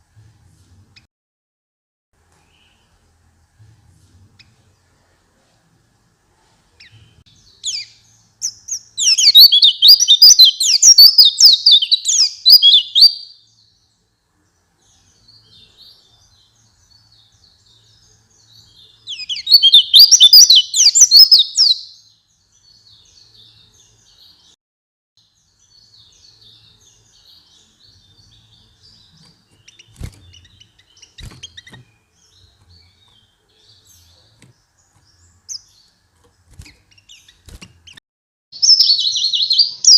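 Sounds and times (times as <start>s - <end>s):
bird twittering song: 2.3s - 3.1s, 6.8s - 24.6s, 25.2s - 38.0s, 38.6s - 39.9s
faint bird chirps: 2.3s - 3.2s, 6.3s - 24.6s, 25.2s - 38.0s.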